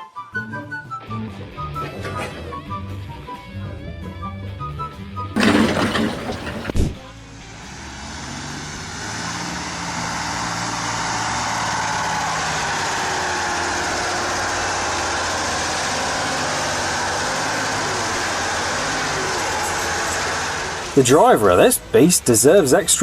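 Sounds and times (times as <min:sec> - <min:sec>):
heavy engine running: 0:05.4 - 0:22.0.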